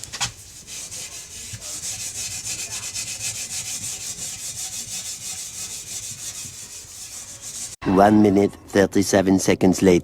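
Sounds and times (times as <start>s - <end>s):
steel wool scrubbing metal pipe: 0.0s - 7.8s.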